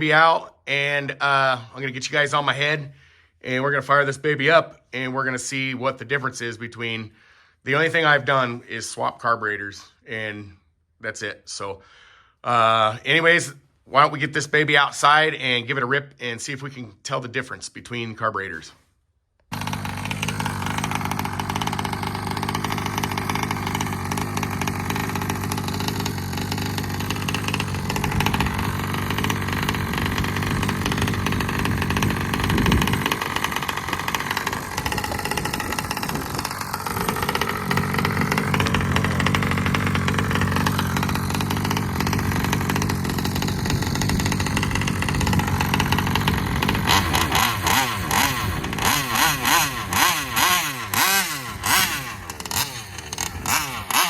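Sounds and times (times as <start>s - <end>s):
two-stroke engine revving: 19.5s - 54.0s.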